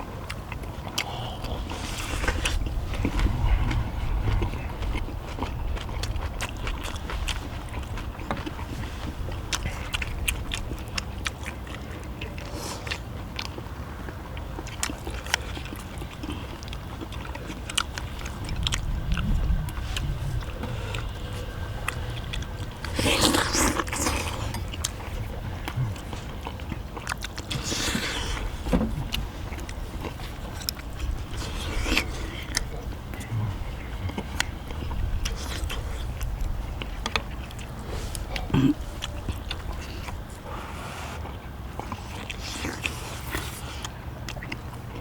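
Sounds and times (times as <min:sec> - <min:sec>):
people chewing: 0:00.0 - 0:45.0
low rumble: 0:00.4 - 0:11.4, 0:17.2 - 0:40.6
loud rushing noise: 0:01.6 - 0:07.8.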